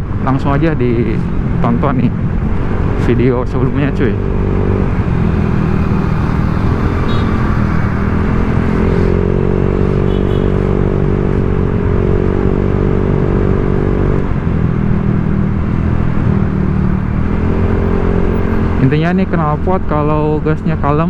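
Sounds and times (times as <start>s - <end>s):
scooter engine running: 4.2s - 10.7s.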